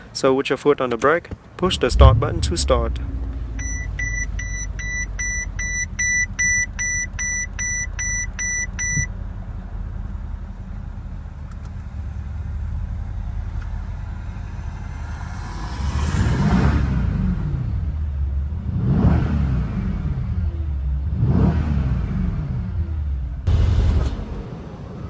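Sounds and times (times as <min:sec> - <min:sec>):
engine revving: 0:01.6 - 0:06.4, 0:14.2 - 0:24.6
car engine idling: 0:01.6 - 0:15.2
car warning chime beeping: 0:03.6 - 0:09.1.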